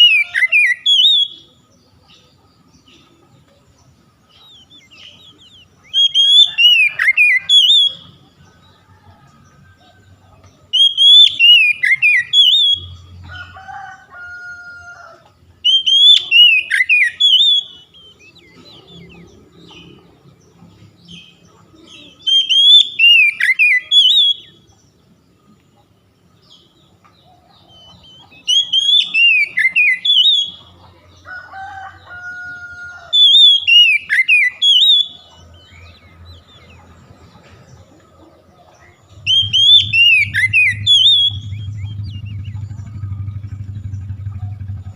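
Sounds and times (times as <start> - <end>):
bird whistling song: 0.0 - 1.6, 4.3 - 8.3, 10.7 - 13.1, 15.6 - 20.0, 21.1 - 24.7, 27.8 - 30.7, 33.0 - 36.6, 39.1 - 44.9.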